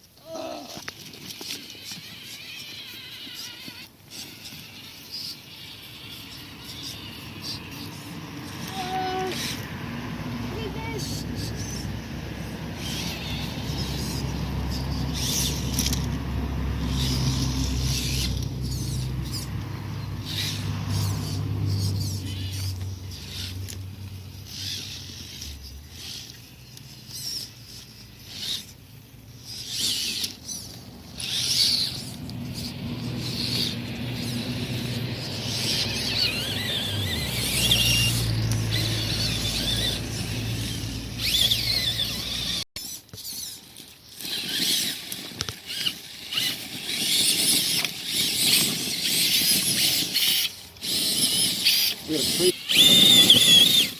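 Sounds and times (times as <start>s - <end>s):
electric motor and gears whining: 0.0s - 53.9s
tyres crackling over stones: 21.7s - 53.9s.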